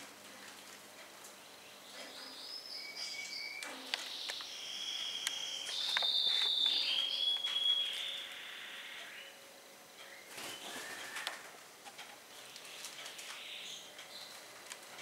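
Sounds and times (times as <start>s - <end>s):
bird chirps and whistles: 2.4s - 9.4s.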